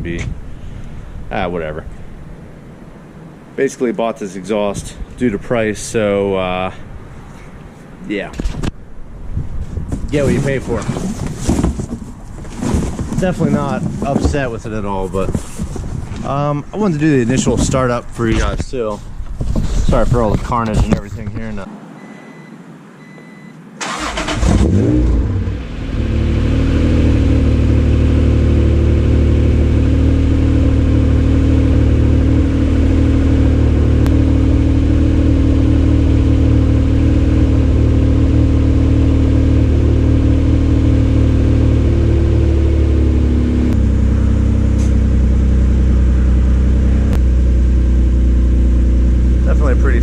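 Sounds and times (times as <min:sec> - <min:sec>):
car engine starting and idling: 0:23.2 - 0:50.0.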